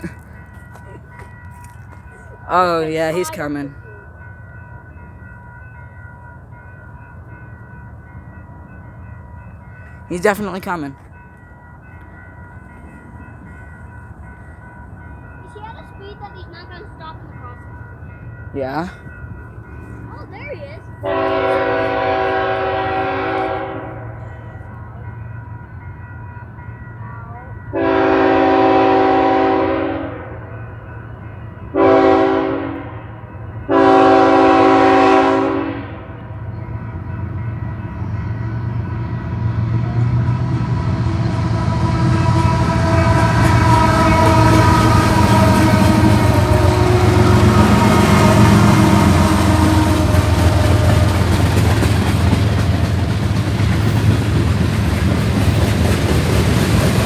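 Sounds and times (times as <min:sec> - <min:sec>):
freight train rumbling past: 0:00.0 - 0:57.0
locomotive horn blasts: 0:21.0 - 0:24.2, 0:27.7 - 0:30.4, 0:31.7 - 0:33.1, 0:33.7 - 0:36.2, 0:41.1 - 0:51.5.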